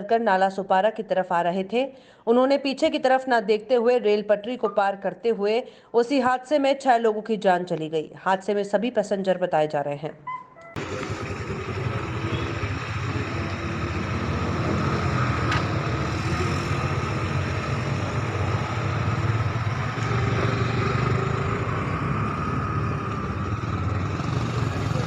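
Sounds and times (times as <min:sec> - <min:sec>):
engine humming: 0:10.8 - 0:25.0.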